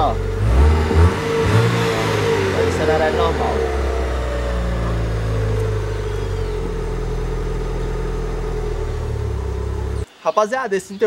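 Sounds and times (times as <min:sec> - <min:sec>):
car engine running: 0:00.0 - 0:10.1.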